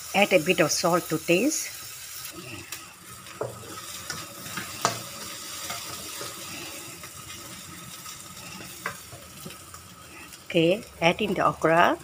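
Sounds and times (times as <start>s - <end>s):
food sizzling in a wok: 0.0s - 12.0s
spatula scraping and tapping pan: 3.3s - 6.7s, 8.0s - 9.6s.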